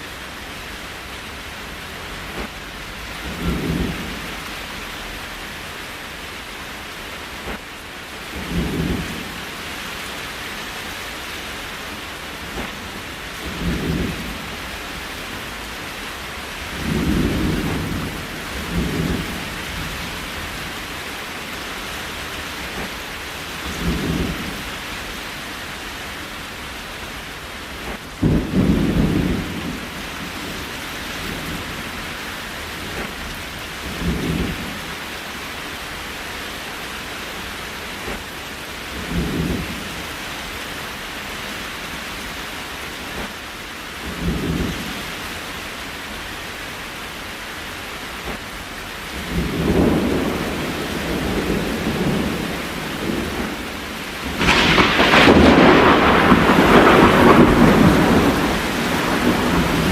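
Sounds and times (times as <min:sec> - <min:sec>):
rain hiss: 0:00.0 - 0:59.9
low thunder rumbles: 0:02.1 - 0:04.6, 0:08.3 - 0:09.5, 0:12.2 - 0:20.9, 0:23.6 - 0:24.8, 0:27.8 - 0:32.2, 0:32.8 - 0:35.0, 0:38.9 - 0:40.0, 0:49.1 - 0:59.9.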